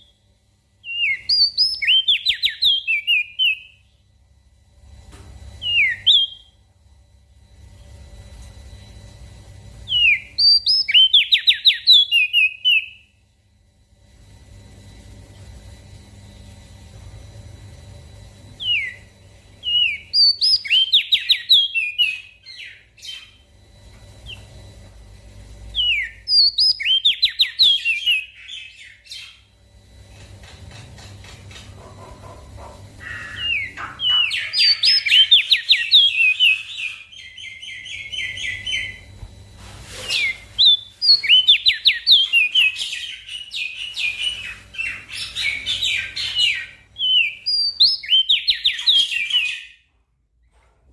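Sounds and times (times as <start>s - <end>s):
small songbird chirping: 0.0s - 4.0s, 9.9s - 13.1s, 18.6s - 23.6s, 25.7s - 29.5s, 33.0s - 39.1s, 40.2s - 49.8s.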